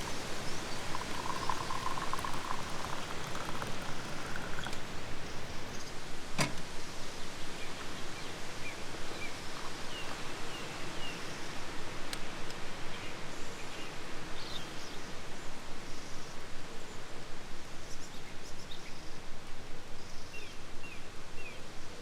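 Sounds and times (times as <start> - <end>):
faint bird chirps: 0.0 - 5.6
outdoor noise hiss: 0.0 - 22.0.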